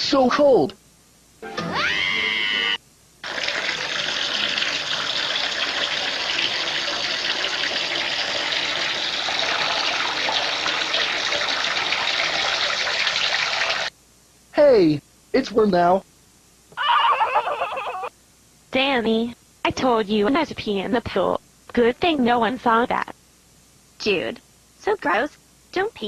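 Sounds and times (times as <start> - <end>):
stream of running water: 3.2 - 13.9.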